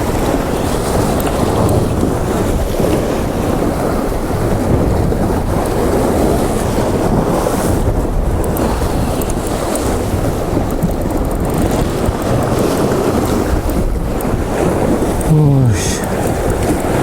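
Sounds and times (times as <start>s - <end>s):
wind rumbling on microphone: 0.0s - 17.0s
sea swell on rocky shore: 14.4s - 17.0s.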